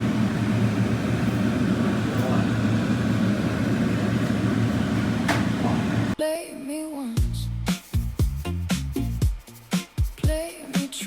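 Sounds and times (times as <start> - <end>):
low mechanical hum: 0.0 - 6.2.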